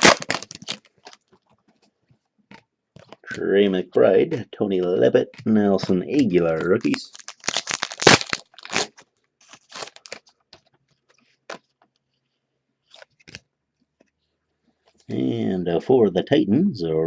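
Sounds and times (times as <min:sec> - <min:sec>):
trading cards rustling: 0:00.0 - 0:01.9, 0:04.3 - 0:11.9.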